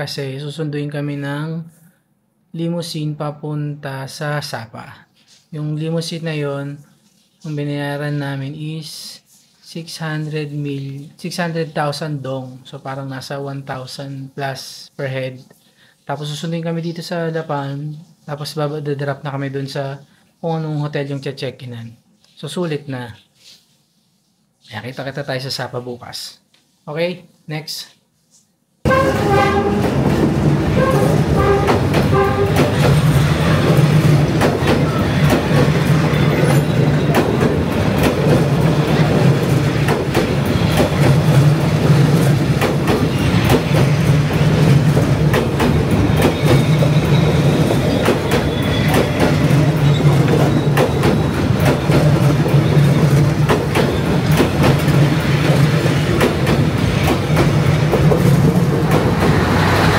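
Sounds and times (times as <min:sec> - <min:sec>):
train wheels clattering over rails: 0:28.9 - 0:59.9
low drone of passing carriages: 0:57.7 - 0:59.9.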